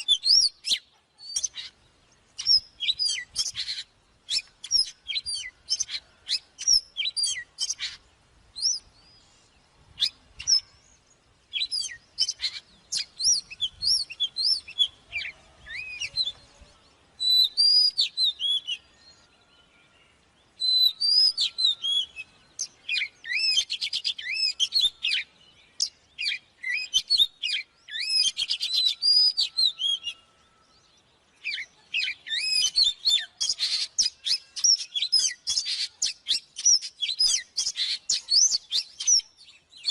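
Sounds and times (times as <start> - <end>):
magpie-robin singing: 0.0 - 19.4, 20.2 - 39.9.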